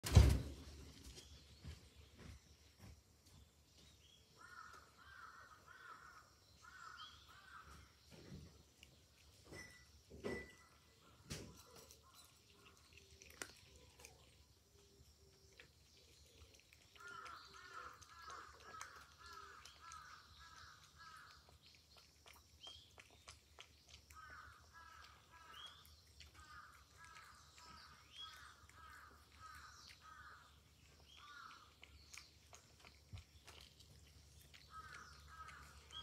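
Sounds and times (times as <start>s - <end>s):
cat lapping from bowl: 8.4s - 36.0s.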